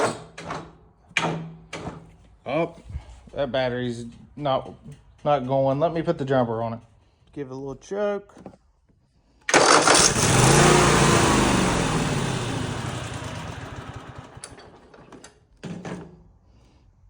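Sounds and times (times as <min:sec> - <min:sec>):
mower engine starting and running: 0:09.5 - 0:15.4.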